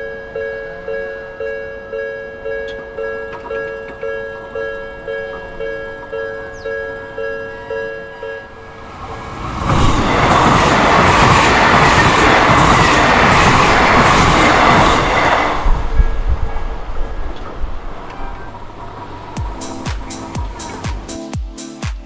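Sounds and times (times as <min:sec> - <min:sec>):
train passing wheel and rail noise: 0:00.3 - 0:06.4, 0:07.1 - 0:21.3
thumps of train cars: 0:02.7 - 0:04.3, 0:08.7 - 0:21.1.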